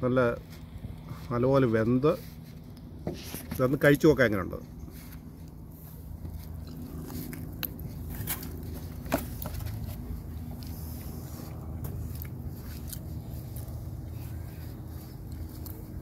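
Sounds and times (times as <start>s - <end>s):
person chewing: 6.3s - 8.7s, 10.3s - 16.0s.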